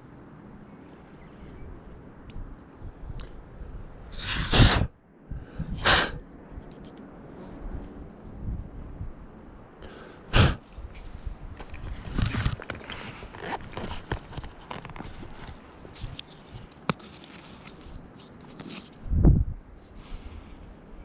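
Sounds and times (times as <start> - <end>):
handling rustling and clicks: 10.8 - 19.1.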